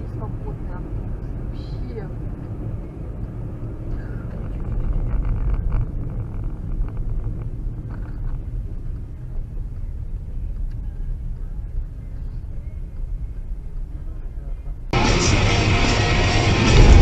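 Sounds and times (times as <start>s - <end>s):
car engine and road noise: 0.0s - 17.0s
faint rattling: 3.9s - 9.7s.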